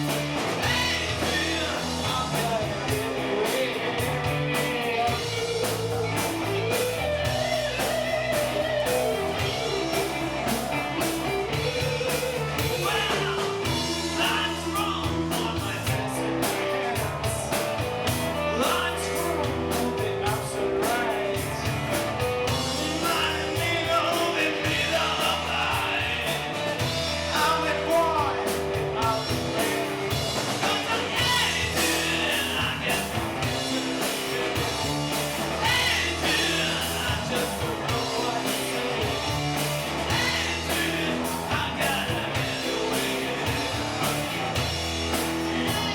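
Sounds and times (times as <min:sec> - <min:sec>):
guitar: 0:00.0 - 0:45.9
steady drum beat: 0:00.0 - 0:45.9
person singing: 0:00.6 - 0:05.9, 0:22.5 - 0:44.2.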